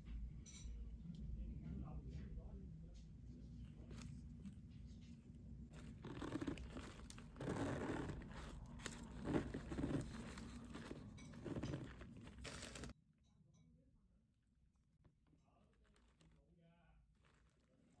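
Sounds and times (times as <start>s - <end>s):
crinkling and rustling handling noise: 3.0s - 13.0s, 14.8s - 18.0s.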